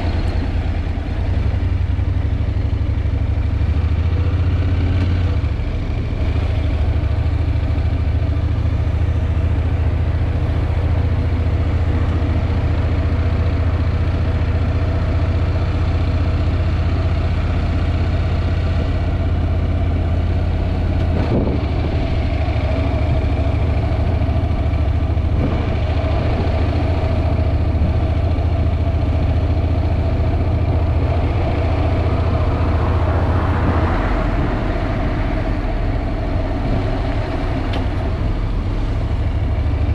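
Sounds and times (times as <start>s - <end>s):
motorcycle engine running: 0.0s - 39.9s
wind buffeting microphone: 20.6s - 39.2s.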